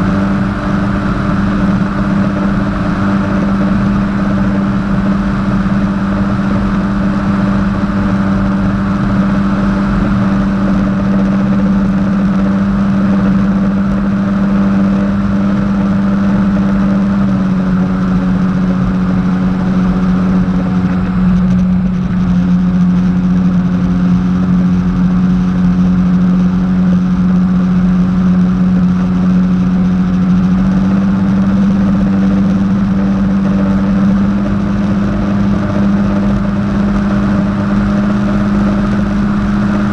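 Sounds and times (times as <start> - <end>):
water rushing: 0.0 - 25.0
jet ski engine droning: 0.0 - 39.9.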